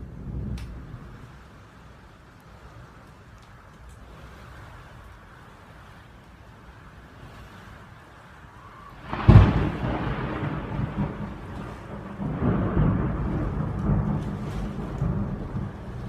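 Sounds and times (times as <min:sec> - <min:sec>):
rolling thunder rumble: 0:00.0 - 0:03.2, 0:08.6 - 0:16.0
thunder crack: 0:09.0 - 0:16.0.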